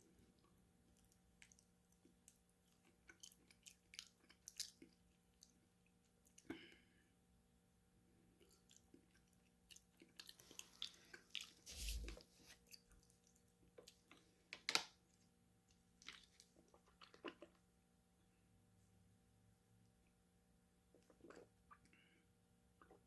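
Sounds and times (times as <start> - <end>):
person eating and crunching: 2.2 - 5.6, 8.4 - 14.8.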